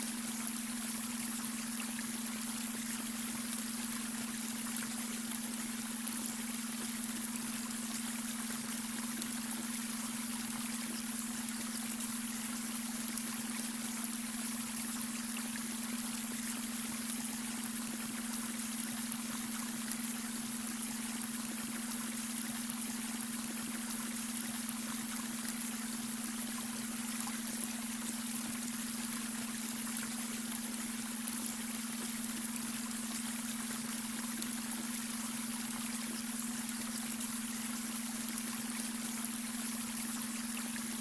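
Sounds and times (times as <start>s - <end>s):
brook babbling: 0.0s - 41.0s.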